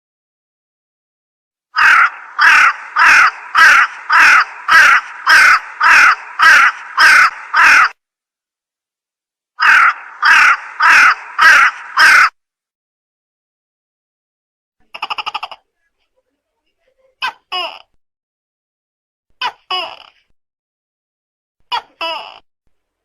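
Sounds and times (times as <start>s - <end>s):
crow cawing: 1.8s - 8.0s, 9.6s - 12.4s.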